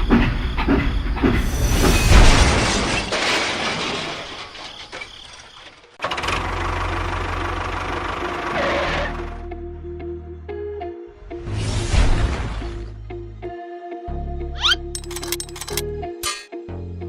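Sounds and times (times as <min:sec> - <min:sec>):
small engine running: 0:06.0 - 0:09.4
mechanical rattle: 0:14.6 - 0:16.4.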